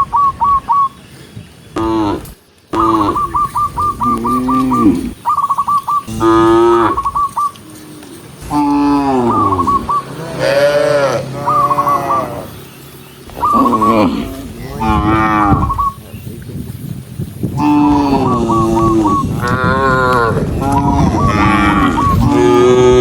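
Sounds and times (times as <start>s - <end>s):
cattle mooing: 4.0s - 5.2s, 6.0s - 7.1s, 7.8s - 12.6s, 13.5s - 15.9s, 17.6s - 23.0s
quick high chirping: 11.5s - 14.8s, 15.5s - 17.6s.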